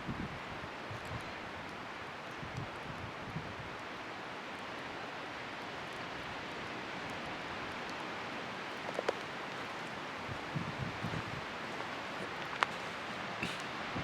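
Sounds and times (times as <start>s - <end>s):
fire crackles: 5.6s - 14.0s
bonfire rushing in wind: 7.2s - 14.0s.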